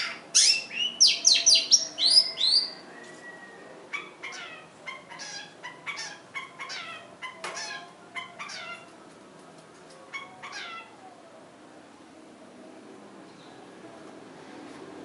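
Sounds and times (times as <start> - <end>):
shrike calling: 0.0 - 8.9.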